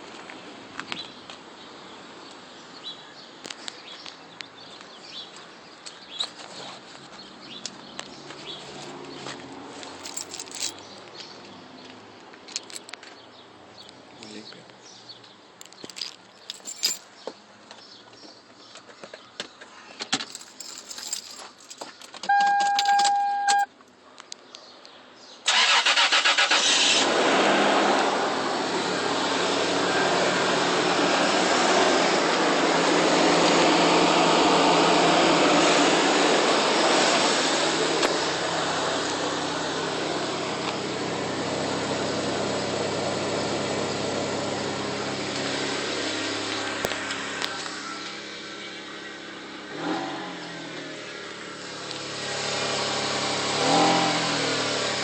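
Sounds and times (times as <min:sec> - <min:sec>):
car engine running: 0:22.3 - 0:23.7
truck engine revving: 0:25.5 - 0:48.1, 0:49.3 - 0:55.0.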